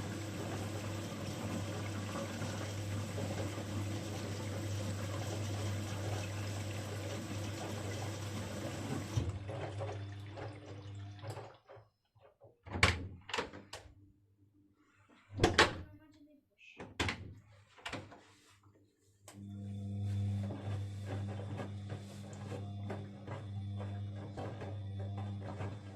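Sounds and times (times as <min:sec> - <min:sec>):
washing machine rushing water: 0:00.0 - 0:12.0, 0:19.4 - 0:25.9.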